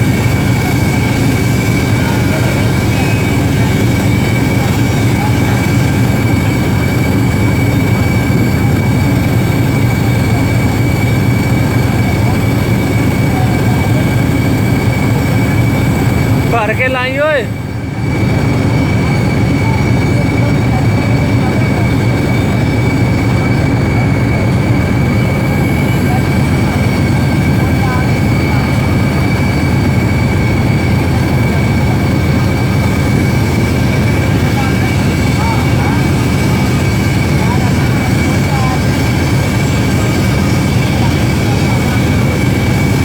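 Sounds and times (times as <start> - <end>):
loud machine drone: 0.0 - 43.0
thin high whine: 0.0 - 43.0
welding set humming and buzzing: 0.0 - 43.0.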